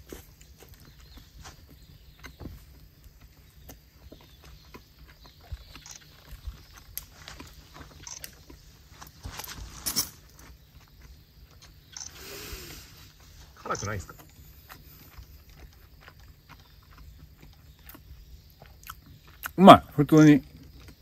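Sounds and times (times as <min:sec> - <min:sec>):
person chewing food: 0:00.0 - 0:08.9, 0:10.4 - 0:11.8, 0:14.1 - 0:19.6, 0:20.6 - 0:21.0
mouth clicks and crunches: 0:00.0 - 0:09.2, 0:10.3 - 0:19.6, 0:20.4 - 0:21.0.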